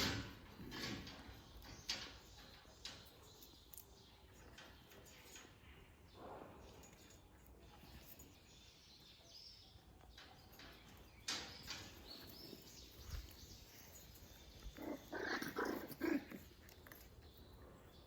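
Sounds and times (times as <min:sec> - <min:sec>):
puppies barking: 0:14.1 - 0:17.1.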